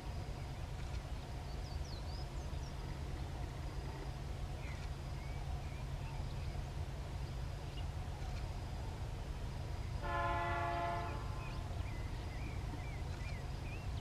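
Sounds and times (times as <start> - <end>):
steady low rumble: 0.0 - 14.0
small birds chirping: 0.1 - 6.8, 10.6 - 14.0.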